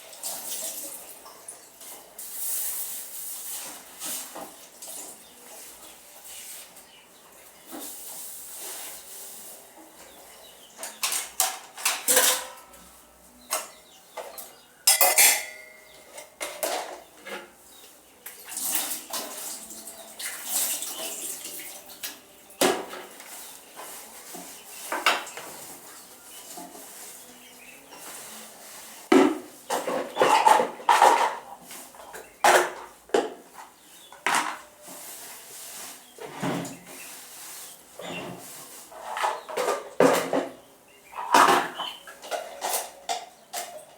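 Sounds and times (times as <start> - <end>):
metal dishes clinking and clattering: 10.8 - 12.8, 13.6 - 17.5, 41.2 - 43.9.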